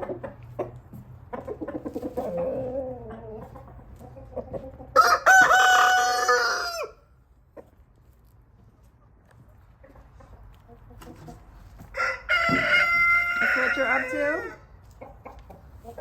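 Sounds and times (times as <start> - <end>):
chickens clucking: 0.0 - 16.0
rooster crowing: 5.0 - 7.0, 11.9 - 14.6.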